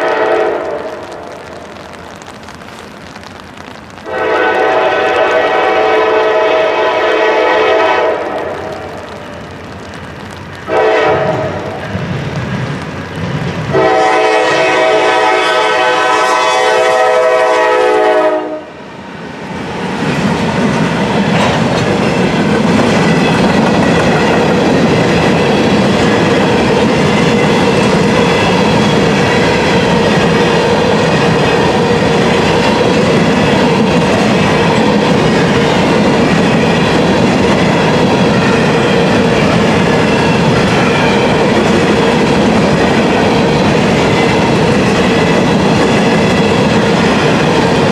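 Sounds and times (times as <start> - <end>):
locomotive air horn: 0.0 - 1.3, 4.1 - 8.8, 10.7 - 11.7, 13.7 - 18.8
train rumbling past: 0.0 - 47.9
wheels clacking over rail joints: 7.1 - 14.7, 19.6 - 47.9.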